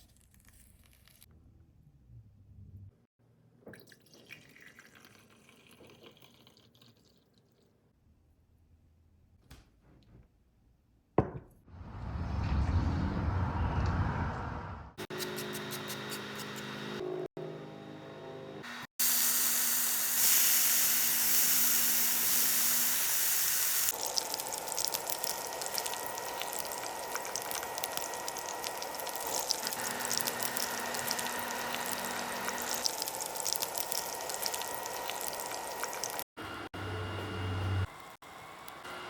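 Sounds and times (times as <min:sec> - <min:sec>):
loud hiss: 0:19.0 - 0:23.9.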